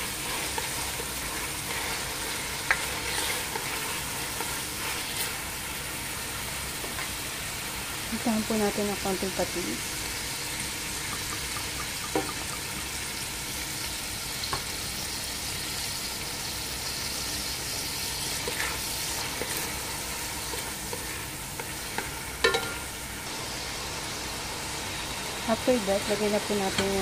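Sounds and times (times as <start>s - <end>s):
spatula scraping a pan: 0.0s - 5.5s, 18.2s - 23.0s
food sizzling in hot oil: 0.0s - 27.0s.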